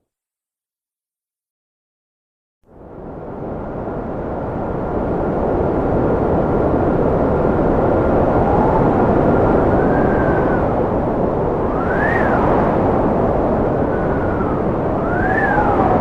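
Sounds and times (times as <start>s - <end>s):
wind howling: 2.8s - 16.0s
thin whistling tones: 11.7s - 12.4s, 15.0s - 15.8s.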